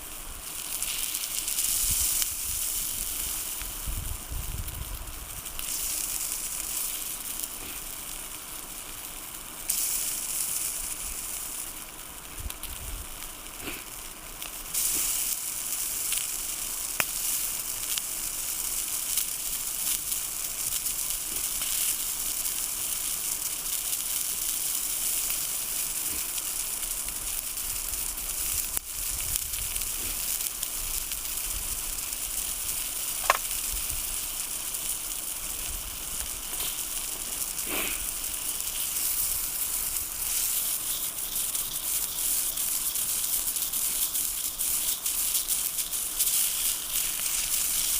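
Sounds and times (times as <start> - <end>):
food sizzling over fire: 0.0 - 47.9
fat popping: 33.1 - 33.8.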